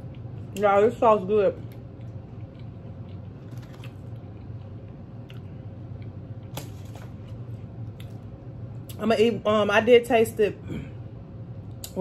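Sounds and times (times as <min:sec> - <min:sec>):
low room hum: 0:00.0 - 0:12.0
person chewing: 0:01.6 - 0:06.7.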